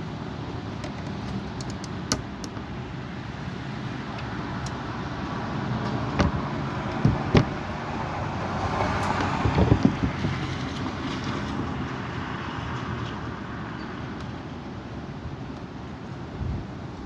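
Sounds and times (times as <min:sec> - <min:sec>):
strong wind gusting: 0:02.6 - 0:11.1
wind buffeting microphone: 0:03.9 - 0:11.1.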